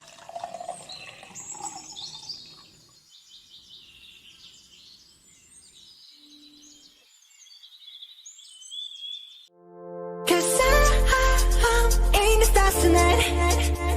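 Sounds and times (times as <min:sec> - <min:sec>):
birds chirping and singing: 0:00.7 - 0:09.5.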